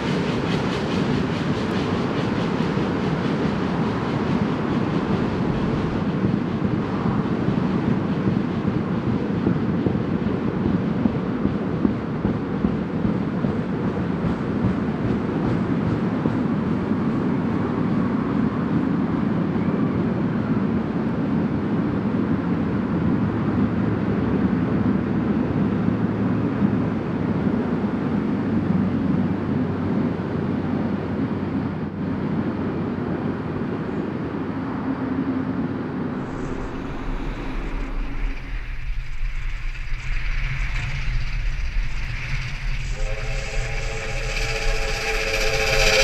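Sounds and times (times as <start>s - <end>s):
wheels rumbling on rails: 0.0s - 46.0s
low steady hum: 36.2s - 46.0s.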